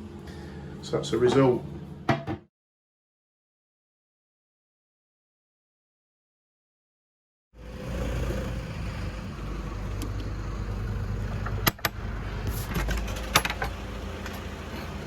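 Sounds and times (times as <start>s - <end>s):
motor vehicle rumbling: 7.6s - 15.0s.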